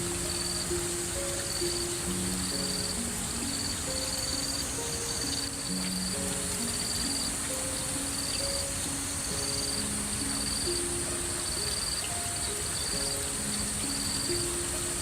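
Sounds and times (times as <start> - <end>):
insects chirping: 0.0 - 15.0
soft melodic background music: 0.0 - 15.0.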